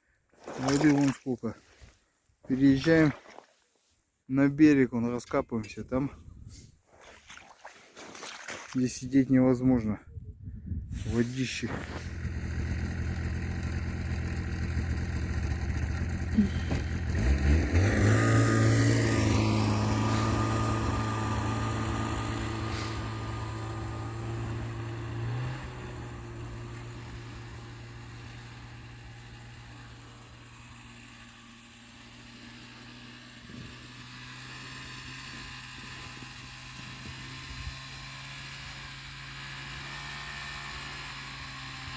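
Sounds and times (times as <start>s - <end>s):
snowmobile engine revving: 11.0s - 41.9s.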